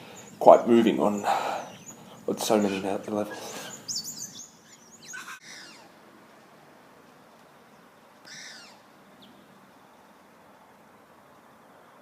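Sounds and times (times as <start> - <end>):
birds calling: 0.0 - 6.0, 7.7 - 10.0
faint steady hiss: 0.0 - 12.0.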